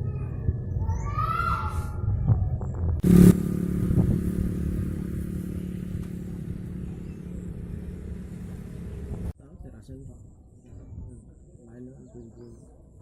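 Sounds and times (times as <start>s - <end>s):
motor engine running: 3.0s - 9.3s.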